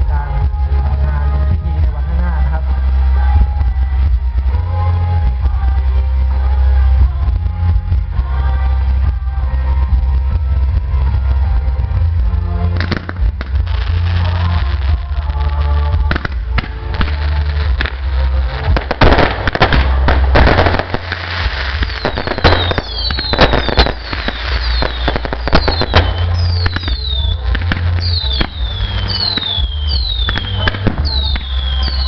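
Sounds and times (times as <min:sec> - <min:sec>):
fireworks bangs and crackling: 0:00.0 - 0:32.0
steady low rumble: 0:00.0 - 0:32.0
falling firework whistles: 0:19.0 - 0:32.0.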